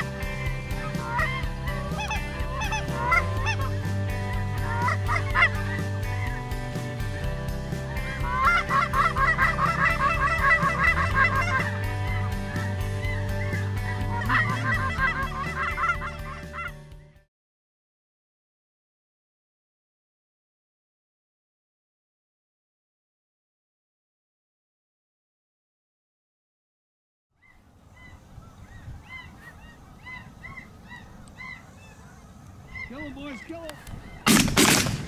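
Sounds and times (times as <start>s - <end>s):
geese honking: 0.0s - 7.1s, 7.7s - 16.8s, 27.4s - 34.8s.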